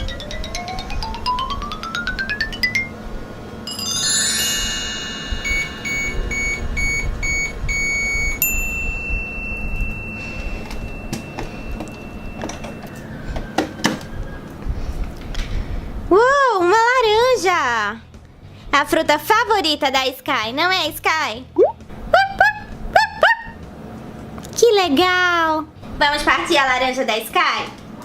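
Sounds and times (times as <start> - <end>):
falling bell-like chime cascade: 3.7 - 6.4
electronic beeps: 5.4 - 8.4.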